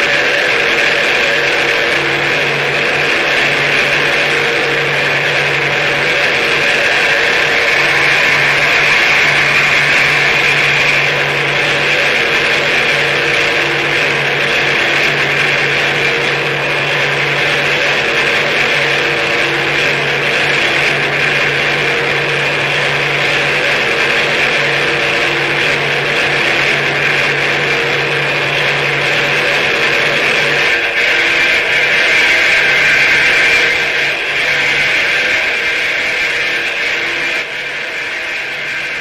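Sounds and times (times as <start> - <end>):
low drone: 0.0 - 39.0
hissing electronic noise: 0.1 - 28.3.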